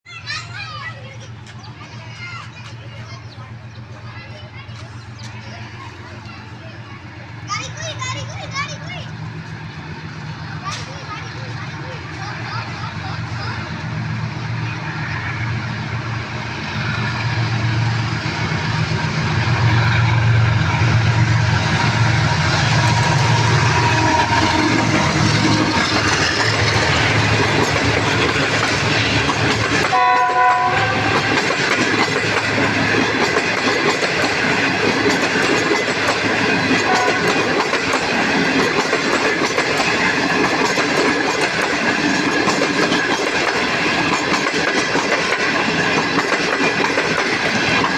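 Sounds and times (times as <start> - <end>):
diesel locomotive engine drone: 0.1 - 47.9
train clattering on rails: 0.1 - 47.9
train horn: 23.0 - 25.8, 29.8 - 31.5, 36.8 - 37.6.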